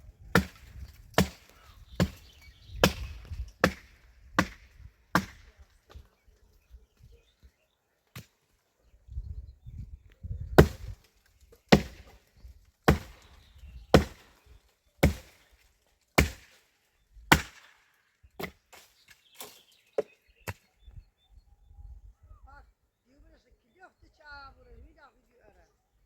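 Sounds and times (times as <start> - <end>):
hand tool chopping blows: 17.3 - 17.8.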